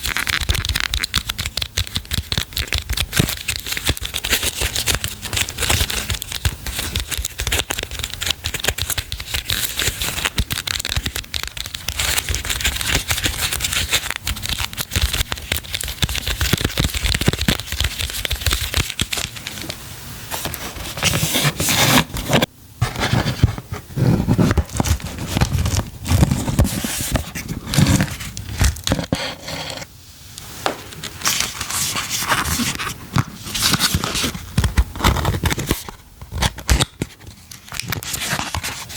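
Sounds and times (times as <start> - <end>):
packaging tearing: 0.0 - 19.8, 31.2 - 37.0
packaging crinkling: 0.0 - 22.4.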